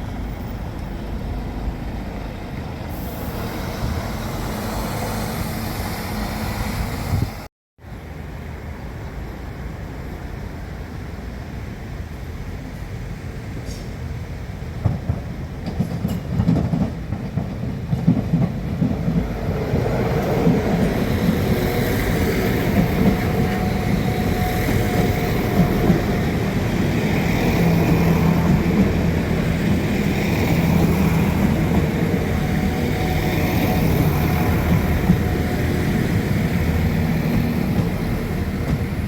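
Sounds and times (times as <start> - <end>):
train rumbling: 0.0 - 39.0
wheels clicking over rail joints: 14.9 - 21.7.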